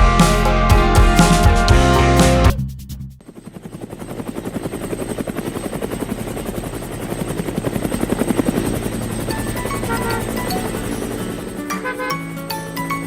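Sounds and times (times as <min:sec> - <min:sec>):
rapid mechanical pulsing: 0:02.8 - 0:13.0.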